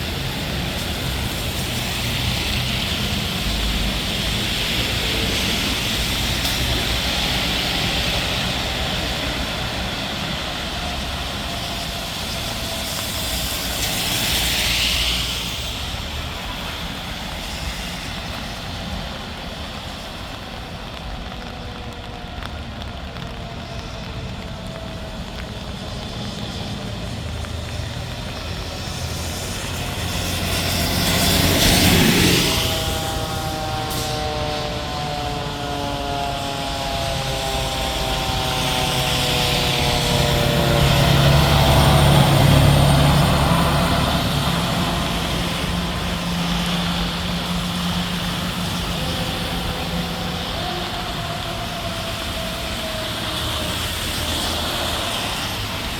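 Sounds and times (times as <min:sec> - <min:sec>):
fire engine siren: 0:00.0 - 0:55.9
diesel engine rumbling: 0:18.3 - 0:54.7.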